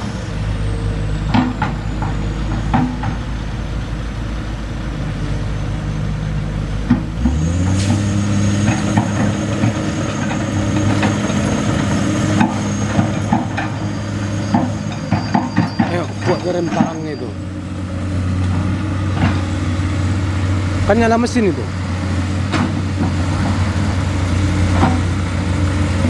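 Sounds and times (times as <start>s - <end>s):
diesel truck engine revving: 0.0s - 26.0s
metal knocks and clanks: 8.6s - 17.2s, 24.7s - 25.2s.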